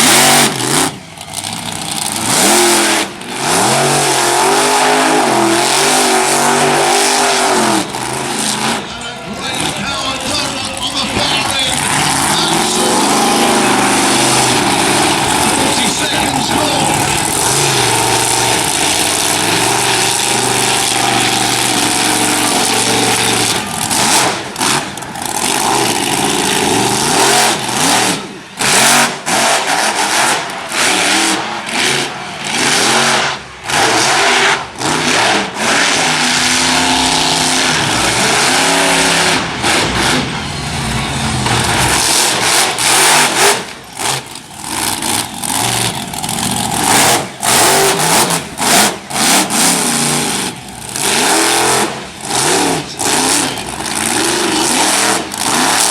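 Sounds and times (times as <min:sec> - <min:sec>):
monster truck engine running: 0:00.0 - 0:55.9.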